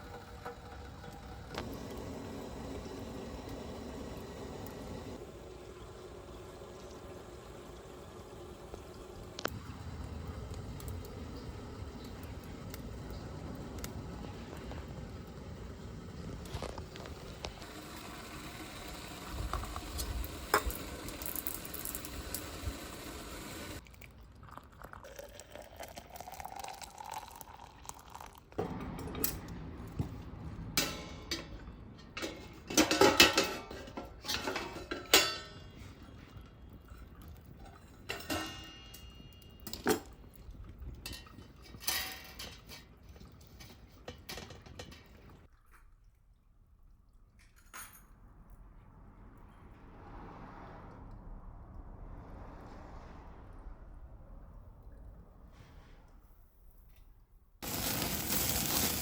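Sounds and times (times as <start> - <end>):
metal cookware clinking: 30.8 - 35.9, 38.0 - 40.1, 47.4 - 48.2.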